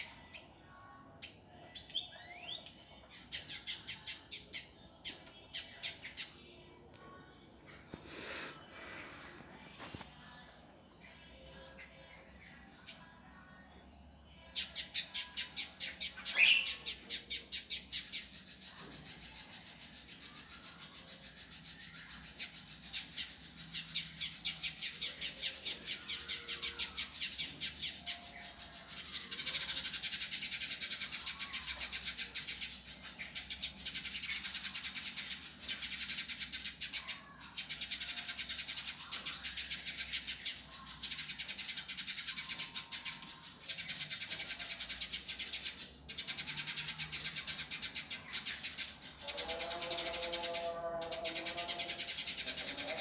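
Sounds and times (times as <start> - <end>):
bird chattering song: 14.4 - 53.0.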